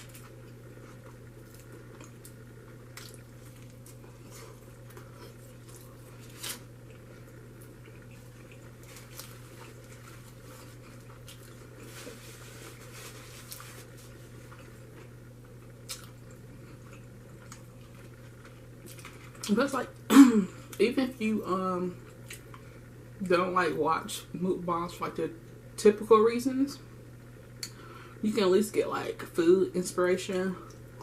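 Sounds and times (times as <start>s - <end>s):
person chewing with wet mouth sounds: 0.0s - 19.5s.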